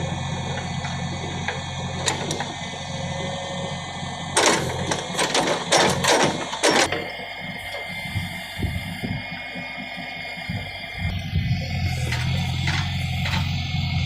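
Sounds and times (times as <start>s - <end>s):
diesel engine humming: 0.0s - 14.0s
loud rough clattering: 4.4s - 7.1s, 12.0s - 13.6s.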